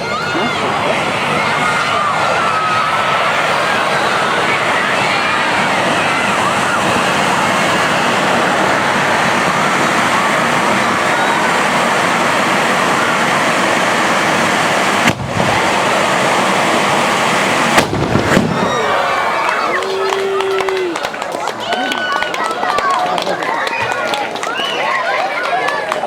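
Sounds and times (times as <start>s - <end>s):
firework spewing sparks hissing: 0.0s - 21.0s
loud firework bang: 14.8s - 19.3s.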